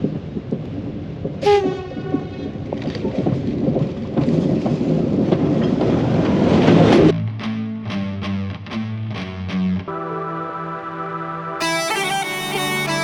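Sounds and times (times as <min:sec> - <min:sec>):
train wheels rumbling and clattering: 0:00.1 - 0:07.1.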